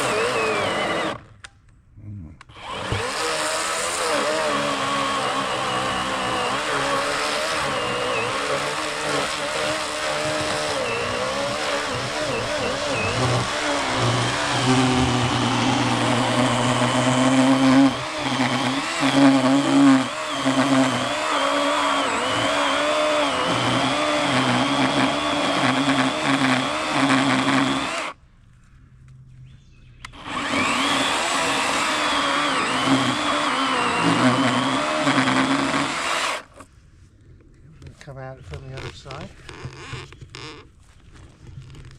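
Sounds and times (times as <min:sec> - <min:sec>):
electric chainsaw cutting log: 0:00.0 - 0:01.4, 0:02.5 - 0:28.2, 0:30.1 - 0:36.7.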